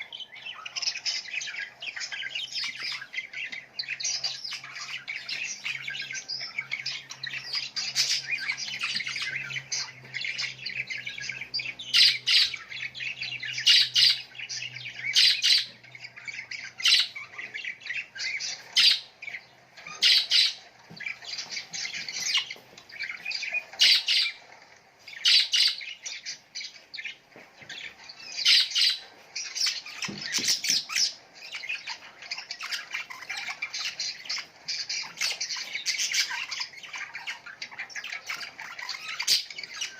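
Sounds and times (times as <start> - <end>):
loud sharp bird calls: 0.0 - 24.5
small songbirds chirping: 0.0 - 39.9.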